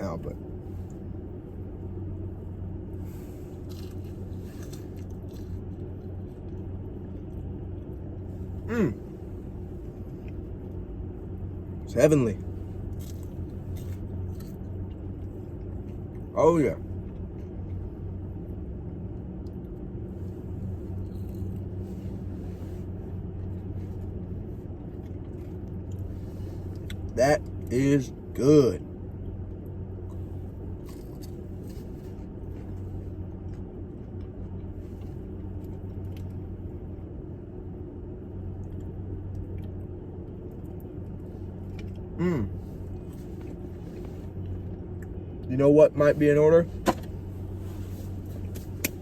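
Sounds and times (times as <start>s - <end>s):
car engine idling: 0.0s - 49.0s
steady low hum: 0.0s - 49.0s
chewing crunchy chicken nuggets: 3.5s - 10.8s, 30.0s - 36.4s, 38.6s - 45.5s.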